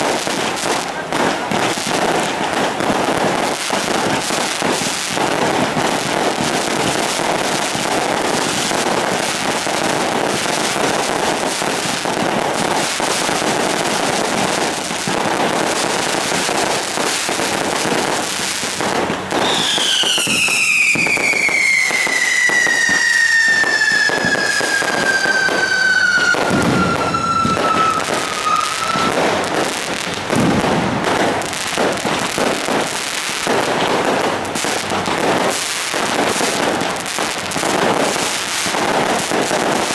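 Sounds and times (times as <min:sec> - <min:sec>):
fireworks crackling: 0:00.0 - 0:39.9
long falling firework whistle: 0:04.6 - 0:18.3, 0:19.3 - 0:30.6.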